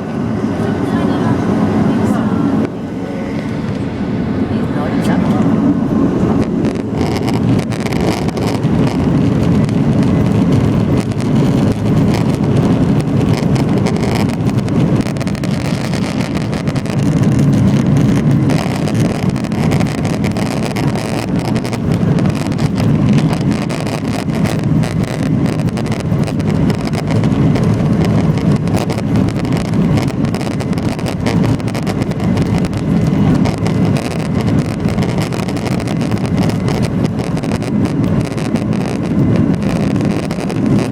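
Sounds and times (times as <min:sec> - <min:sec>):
jet engine deep rumble: 0:00.0 - 0:40.9.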